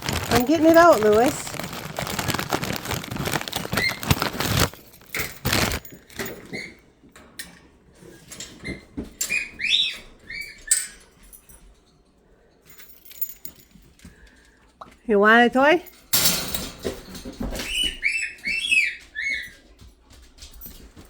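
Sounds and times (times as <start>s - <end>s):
packaging rustling and crinkling: 0.0s - 6.2s.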